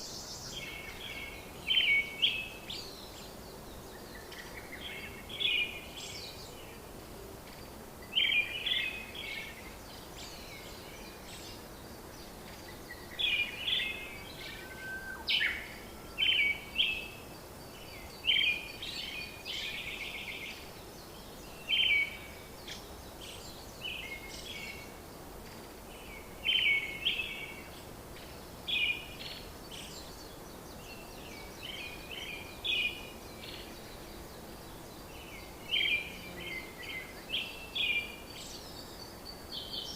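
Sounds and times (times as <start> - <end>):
faint steady hiss: 0.0 - 39.9
bird chirping: 7.5 - 39.9.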